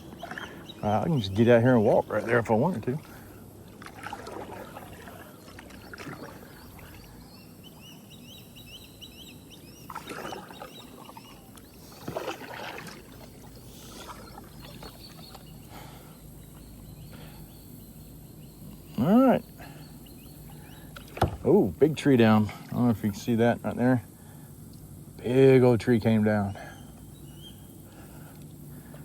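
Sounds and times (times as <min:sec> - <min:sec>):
bird chirping: 0:00.0 - 0:02.9, 0:04.9 - 0:12.0, 0:13.4 - 0:21.8, 0:25.9 - 0:28.1
paddle strokes swishing in water: 0:00.0 - 0:07.9, 0:09.6 - 0:15.6.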